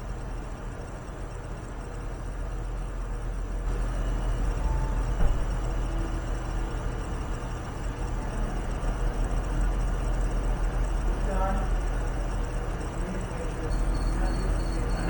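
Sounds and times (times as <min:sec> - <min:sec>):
electrical hum and hiss: 0:00.0 - 0:15.0
short knock: 0:05.2 - 0:05.6.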